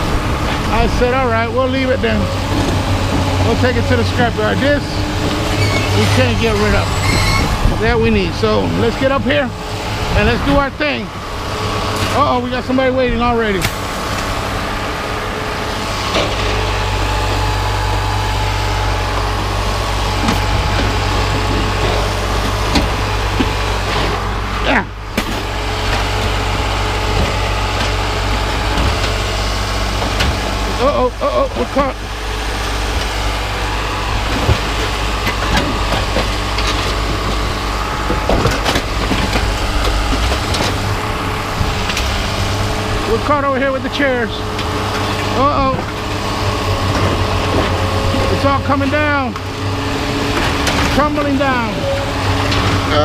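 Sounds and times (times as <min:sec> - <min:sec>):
truck engine humming: 0:00.0 - 0:53.0.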